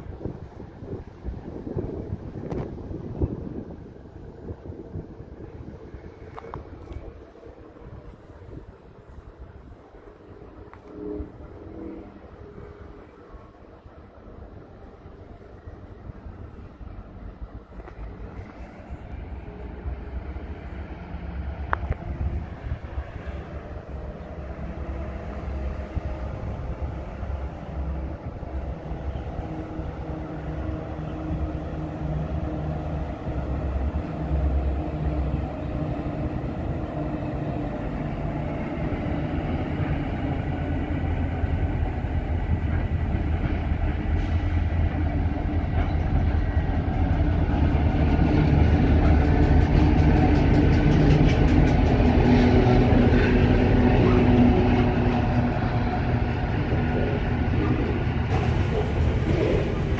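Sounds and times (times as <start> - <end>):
diesel locomotive engines humming: 0.0 - 59.9
freight wagons rolling: 56.8 - 59.9.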